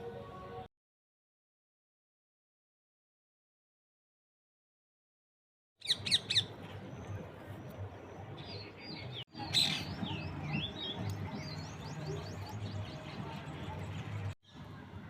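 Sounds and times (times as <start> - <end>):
birds chirping: 5.8 - 14.7.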